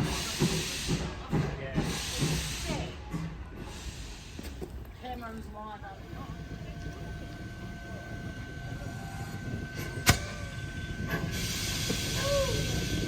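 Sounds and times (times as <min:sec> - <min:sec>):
hiss: 0:00.0 - 0:01.2, 0:01.8 - 0:03.0, 0:03.6 - 0:04.6, 0:11.2 - 0:13.0
train rumbling: 0:00.0 - 0:13.0.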